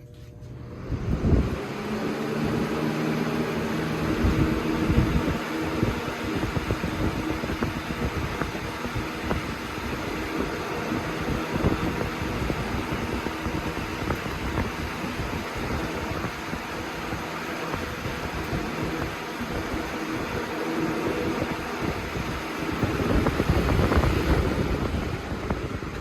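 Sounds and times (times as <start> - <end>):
box fan air rushing: 0.0 - 26.0
low motor hum: 0.0 - 26.0.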